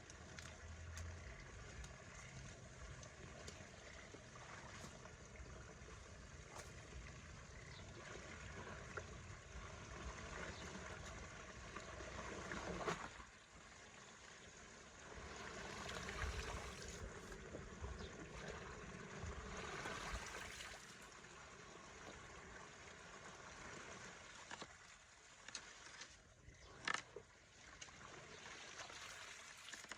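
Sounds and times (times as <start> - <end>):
water trickling and gurgling: 0.0 - 29.9.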